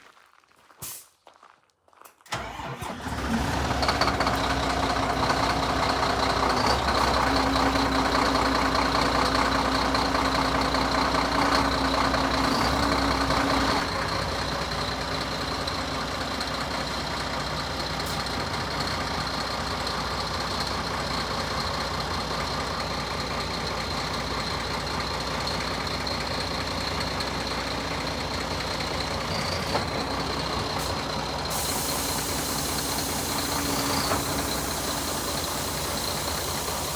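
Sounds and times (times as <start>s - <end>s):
diesel truck engine idling: 2.3s - 36.9s.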